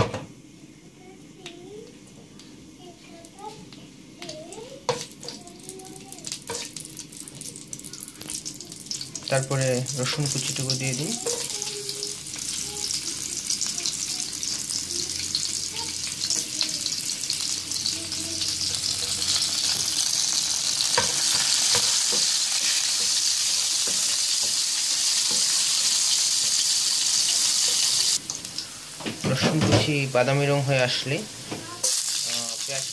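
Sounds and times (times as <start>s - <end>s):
garlic sizzling in hot oil: 3.1s - 32.9s
spatula tapping a pan: 11.1s - 11.7s, 20.9s - 25.6s.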